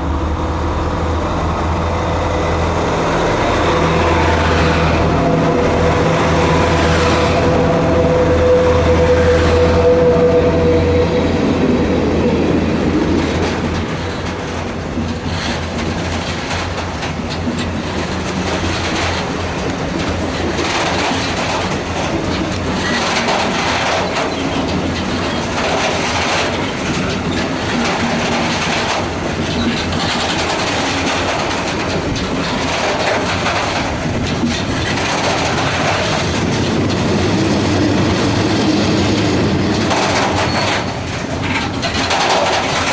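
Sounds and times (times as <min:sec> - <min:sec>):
train engine drone: 0:00.0 - 0:42.9
wagon wheels clacking over rail joints: 0:12.6 - 0:42.9.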